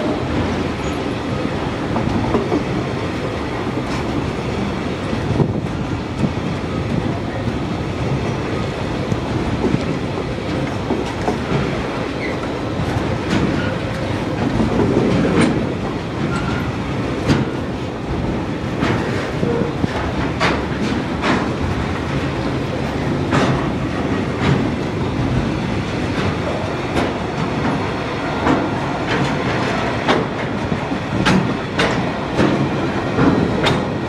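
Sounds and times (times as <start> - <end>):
wheels clattering over rail joints: 9.6 - 34.0.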